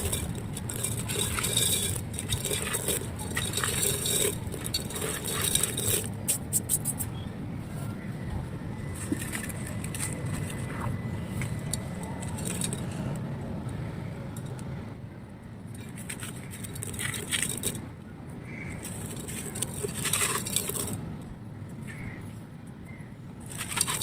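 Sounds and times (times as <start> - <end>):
dry clay crushing and crumbling: 0.0 - 7.1, 8.8 - 13.2, 15.7 - 17.9, 23.4 - 24.0
low steady rumble: 0.0 - 24.0.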